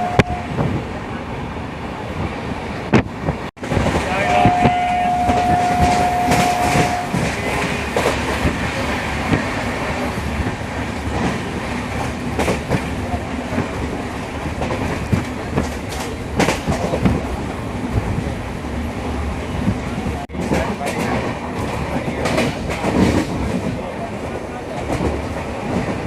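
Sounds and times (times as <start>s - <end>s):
train rumbling on track: 0.0s - 26.0s.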